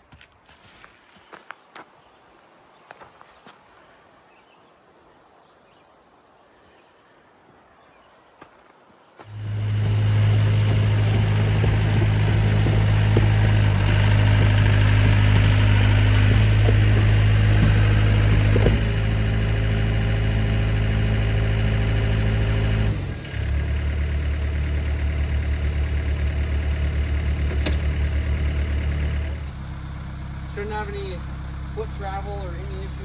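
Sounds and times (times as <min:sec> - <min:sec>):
diesel engine running: 0:09.2 - 0:33.0.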